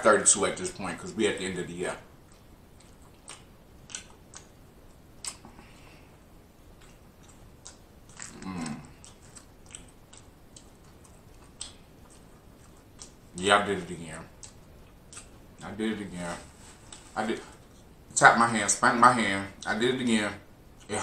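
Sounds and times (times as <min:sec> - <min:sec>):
chewing with wet mouth clicks: 0:02.2 - 0:05.6, 0:06.6 - 0:13.4, 0:14.3 - 0:15.6.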